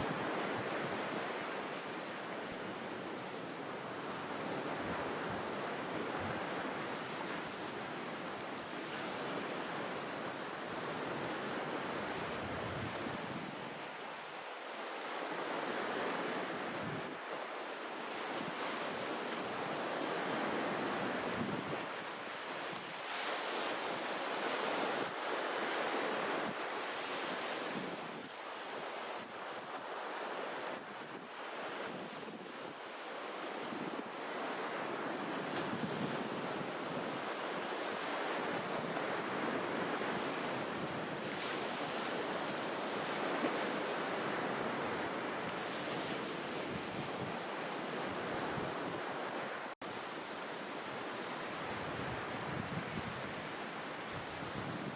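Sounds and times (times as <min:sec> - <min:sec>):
small waves washing ashore: 0:00.0 - 0:54.9
wind on microphone: 0:10.8 - 0:13.8, 0:19.6 - 0:21.9, 0:33.6 - 0:50.0, 0:50.9 - 0:54.9.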